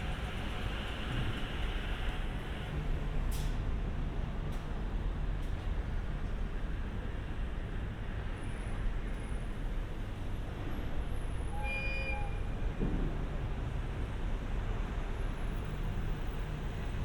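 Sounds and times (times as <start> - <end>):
train horn toot: 11.4 - 12.6.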